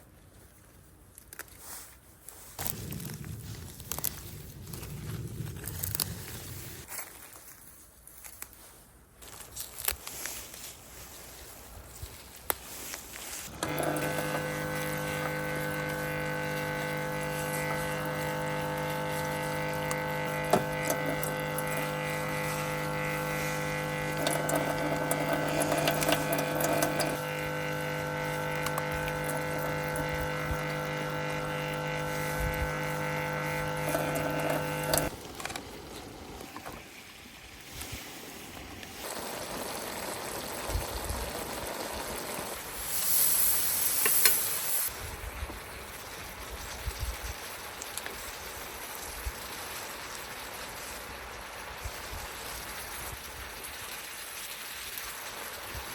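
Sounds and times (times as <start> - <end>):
quiet hiss: 0.0 - 55.9
small electric motor humming: 13.5 - 36.8.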